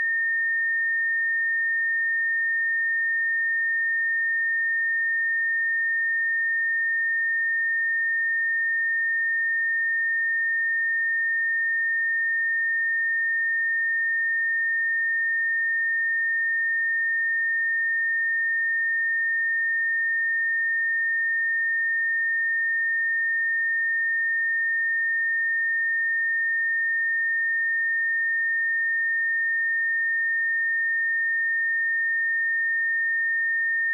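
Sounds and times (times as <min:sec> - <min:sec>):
high-pitched sine test tone: 0:00.0 - 0:33.9.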